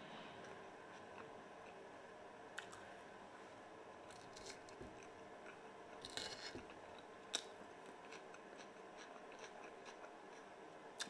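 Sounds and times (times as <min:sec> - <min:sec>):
person chewing food: 0:04.0 - 0:11.0.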